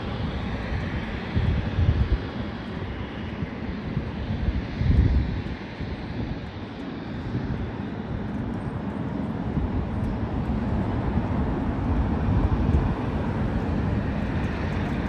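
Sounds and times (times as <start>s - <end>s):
jet airliner rumble: 0.0s - 15.0s.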